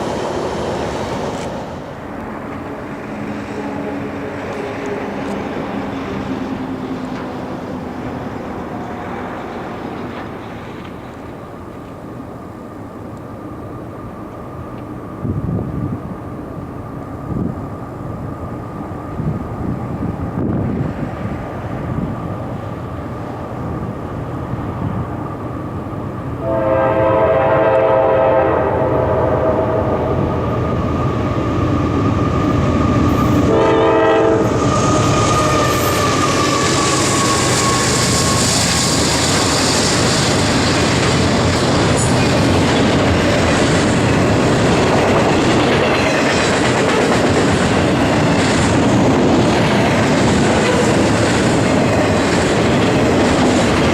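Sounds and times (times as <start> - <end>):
train rumbling: 0.0 - 53.9
wheels clattering on rail: 1.1 - 12.0, 31.6 - 53.9
train air horn: 3.1 - 6.5, 26.4 - 30.3, 33.3 - 39.9.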